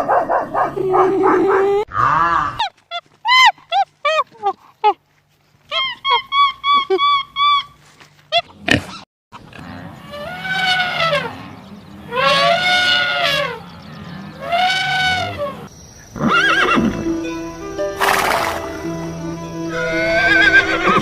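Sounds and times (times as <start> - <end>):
animal calling: 5.7 - 17.2, 19.6 - 21.0.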